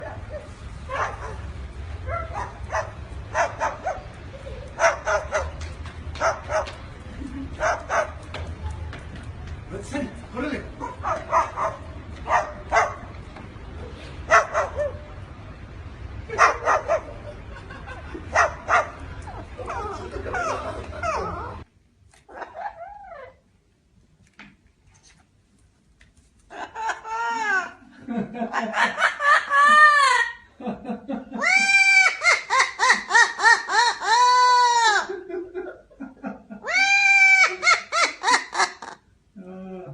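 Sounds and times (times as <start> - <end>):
dog-like barks: 10.8 - 13.1
animal arching cries: 31.4 - 35.2, 36.6 - 39.0
animal wavering cries: 36.6 - 39.0.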